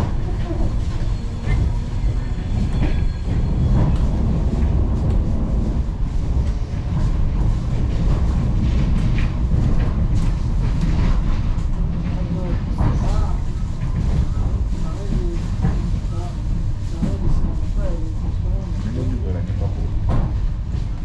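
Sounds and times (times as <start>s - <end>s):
train running: 0.0s - 21.0s.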